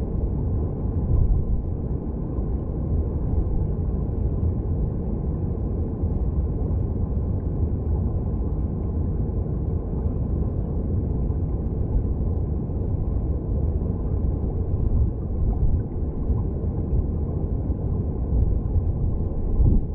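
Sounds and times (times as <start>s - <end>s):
underwater stream current rumble: 0.8s - 4.6s, 11.1s - 19.9s.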